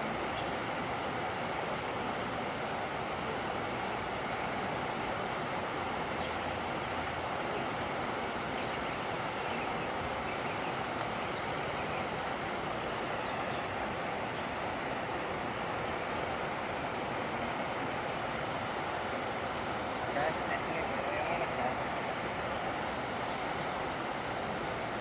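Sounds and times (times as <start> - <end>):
steady rushing noise: 10.8 - 25.0
faint ticks: 11.0 - 11.2.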